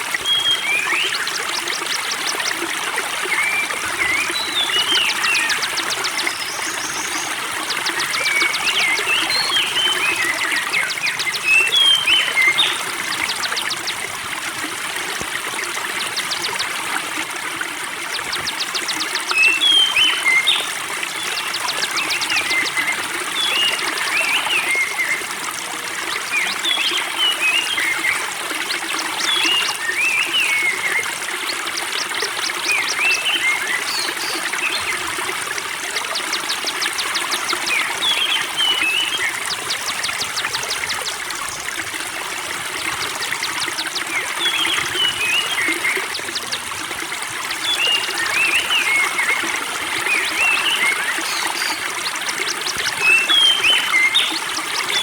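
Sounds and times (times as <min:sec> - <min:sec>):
water trickling: 0:00.0 - 0:55.0
songbirds chirping and trilling: 0:00.2 - 0:55.0.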